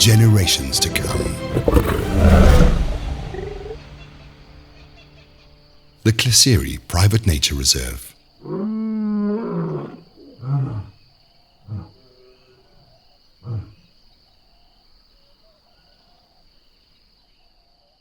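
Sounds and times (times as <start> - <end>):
lion roaring and grunting: 0.8 - 3.9.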